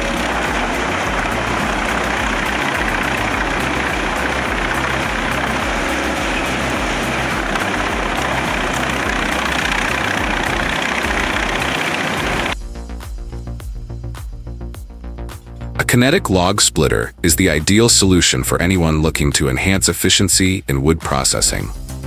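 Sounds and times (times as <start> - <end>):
wood chipper running: 0.0 - 12.6.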